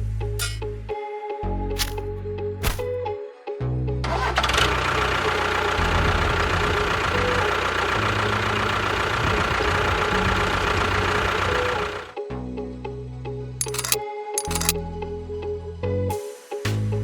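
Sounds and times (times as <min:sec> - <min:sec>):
small machine rattling: 0:13.6 - 0:14.8.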